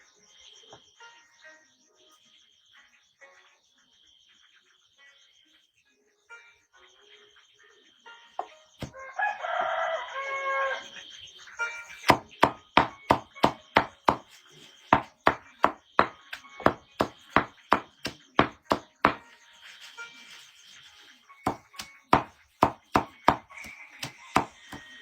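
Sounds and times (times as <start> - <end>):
rooster crowing: 8.8 - 10.9
sharp chopping strikes: 12.0 - 19.2, 21.5 - 24.9.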